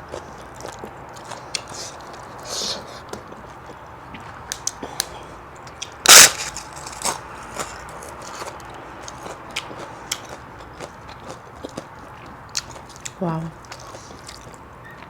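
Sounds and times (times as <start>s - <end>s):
wet mouth clicks and chewing: 0.0s - 15.0s
loud crunching bite: 0.6s - 14.6s.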